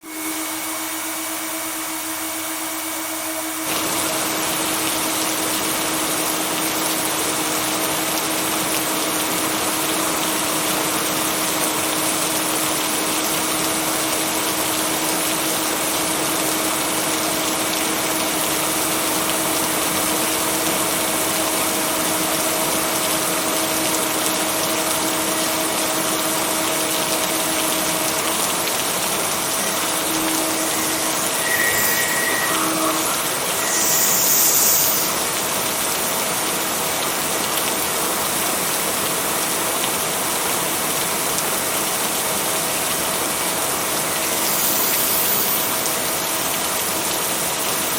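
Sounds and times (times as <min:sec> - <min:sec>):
heavy rain hiss: 0:03.7 - 0:47.9.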